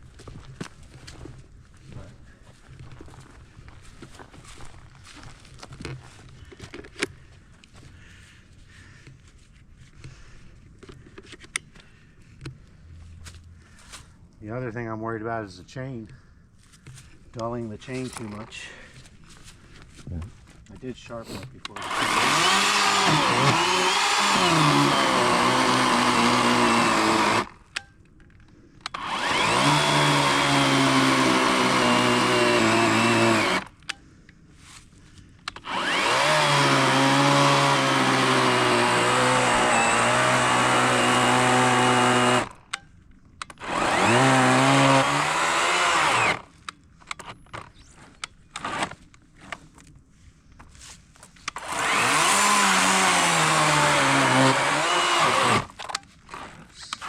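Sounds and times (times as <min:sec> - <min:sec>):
electric chainsaw cutting log: 0:21.7 - 0:27.6, 0:28.9 - 0:33.8, 0:35.5 - 0:42.7, 0:43.5 - 0:46.5, 0:48.6 - 0:49.0, 0:51.5 - 0:56.6.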